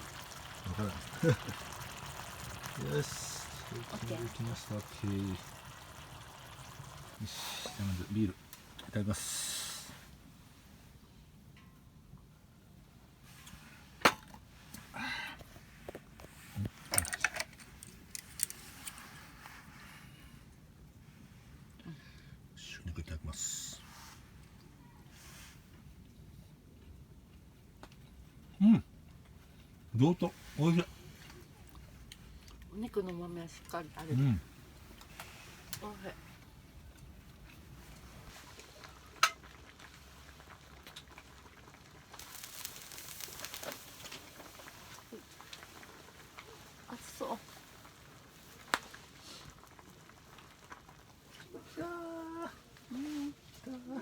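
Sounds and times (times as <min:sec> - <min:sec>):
food sizzling: 0:00.0 - 0:10.1, 0:37.6 - 0:53.4.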